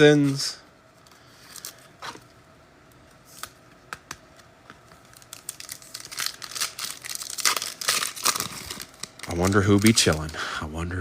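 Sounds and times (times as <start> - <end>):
wrapper crinkling: 4.8 - 10.4.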